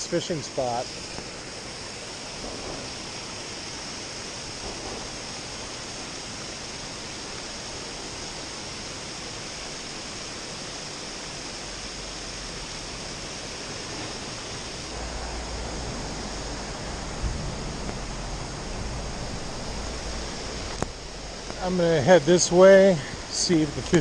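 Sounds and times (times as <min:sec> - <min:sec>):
water pouring over falls: 0:00.0 - 0:24.0.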